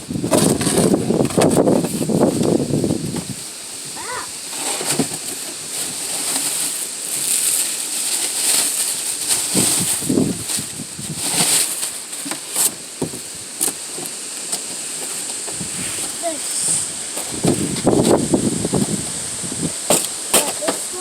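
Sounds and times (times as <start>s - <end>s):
packaging rustling and crinkling: 4.5s - 16.2s.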